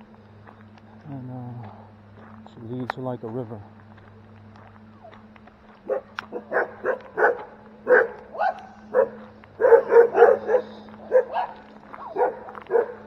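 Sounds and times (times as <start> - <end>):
dog barking: 5.9 - 13.0.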